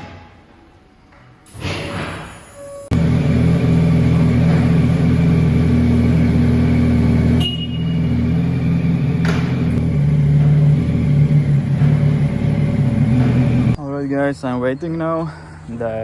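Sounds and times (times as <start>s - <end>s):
motorcycle engine idling: 3.0s - 13.8s.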